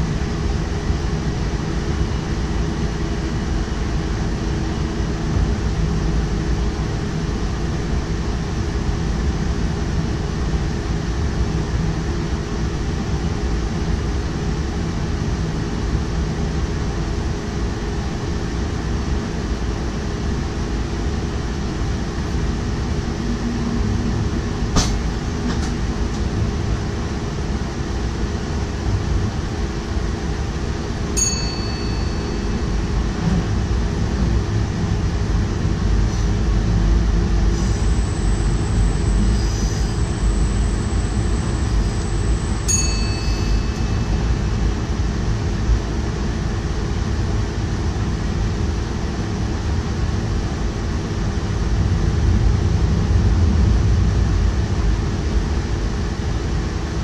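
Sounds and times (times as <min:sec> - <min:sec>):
train running gear rumble: 0:00.0 - 0:57.0
short ringing ding: 0:31.2 - 0:33.1, 0:42.1 - 0:44.8.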